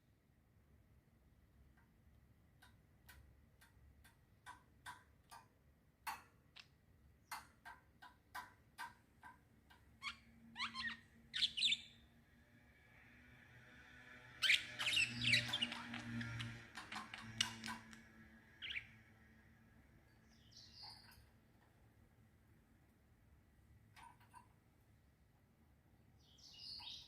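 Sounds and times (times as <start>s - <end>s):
songbirds chirping: 4.4s - 12.2s, 14.3s - 22.2s, 25.9s - 27.0s
bird twittering calls: 10.0s - 12.0s, 14.4s - 18.0s, 18.6s - 19.0s, 20.2s - 21.2s, 26.2s - 27.0s.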